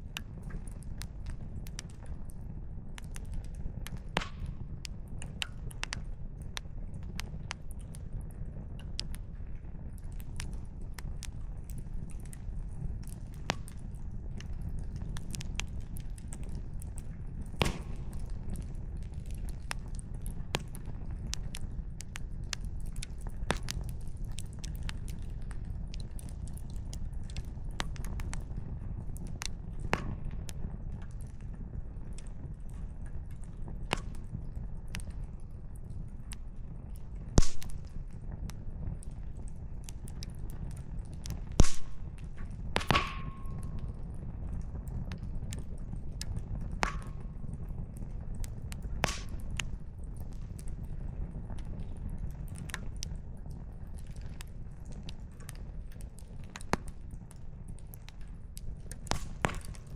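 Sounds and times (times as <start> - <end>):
campfire crackling: 0.1 - 59.9.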